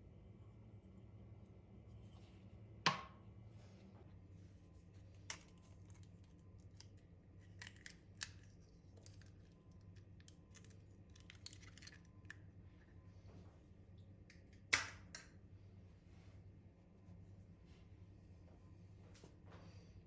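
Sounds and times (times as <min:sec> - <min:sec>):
small objects clicking and snipping: 0:05.2 - 0:12.4.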